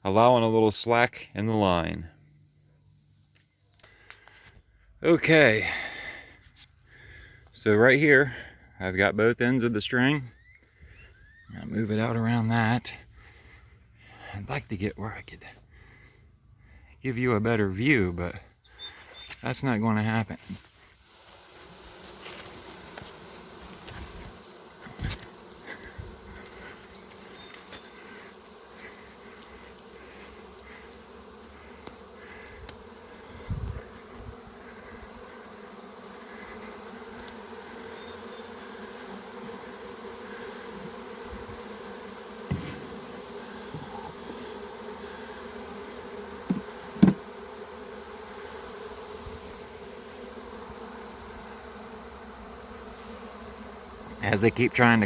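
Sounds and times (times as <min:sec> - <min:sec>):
bee swarm buzzing: 0:01.5 - 0:55.0
short knocks: 0:42.5 - 0:42.9.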